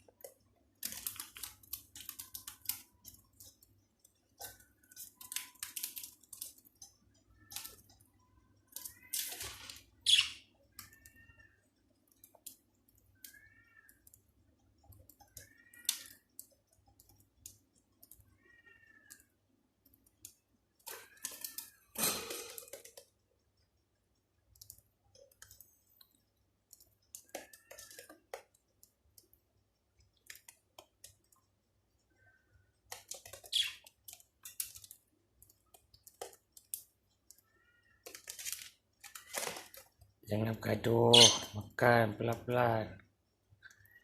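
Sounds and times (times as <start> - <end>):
birds pecking clicks: 0.1 - 9.4, 10.0 - 21.8, 22.5 - 40.1
soft short bird chirps: 10.0 - 10.4.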